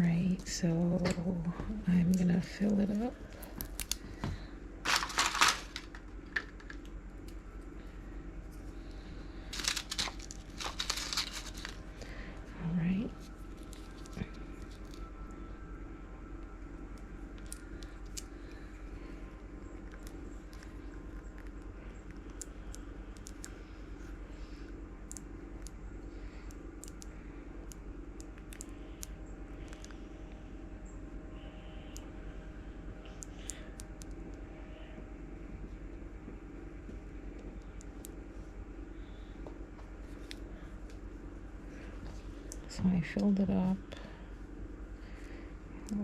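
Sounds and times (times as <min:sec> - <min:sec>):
faint steady hum: 0:00.0 - 0:46.0
plastic items crinkling: 0:04.8 - 0:06.9, 0:09.5 - 0:12.1
plastic pieces clicking: 0:04.9 - 0:06.9, 0:09.6 - 0:11.8.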